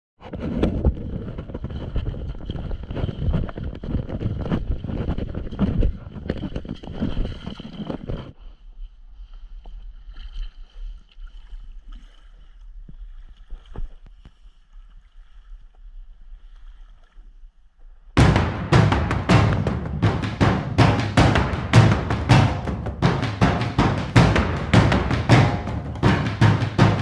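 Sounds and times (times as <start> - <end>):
music with drum hits: 18.2 - 27.0
paddle noise: 18.2 - 27.0.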